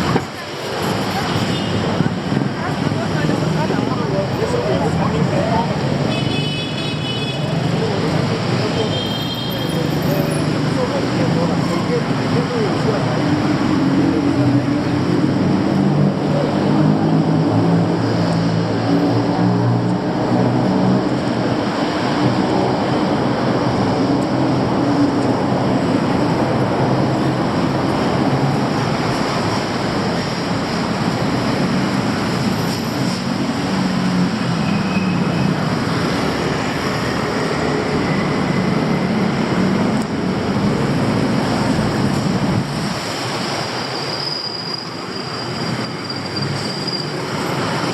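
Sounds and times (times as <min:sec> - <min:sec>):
road traffic roar: 0:00.0 - 0:47.9
passing vehicle engines droning: 0:09.7 - 0:44.2.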